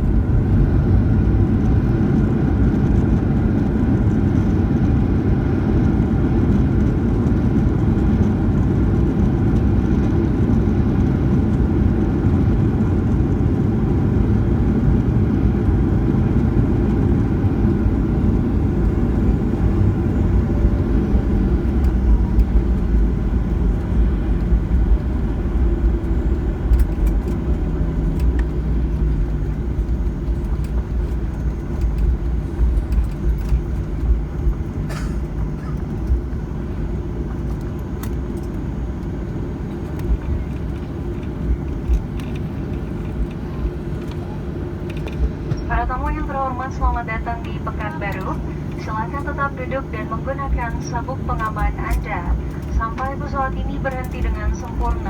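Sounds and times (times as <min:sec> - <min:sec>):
jet engine cabin rumble: 0:00.0 - 0:55.0.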